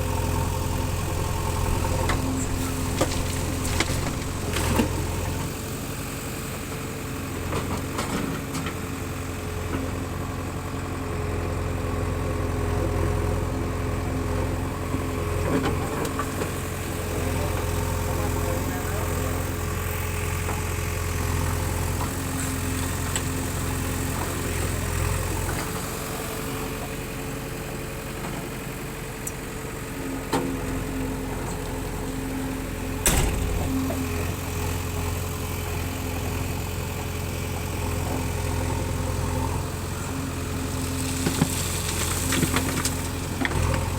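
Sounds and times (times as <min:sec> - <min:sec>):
diesel engine running: 0:00.0 - 0:11.4, 0:12.1 - 0:43.9
sharp knock: 0:33.1 - 0:34.1.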